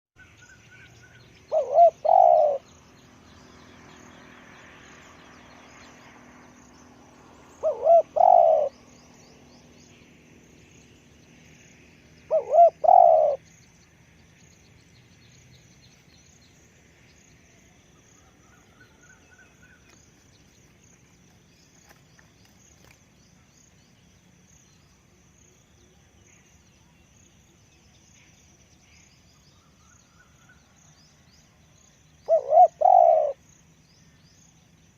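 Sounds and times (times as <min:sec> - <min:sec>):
small birds chirping: 0:00.2 - 0:34.9
dove cooing: 0:01.5 - 0:02.6, 0:07.6 - 0:08.8, 0:12.3 - 0:13.4, 0:32.2 - 0:33.4.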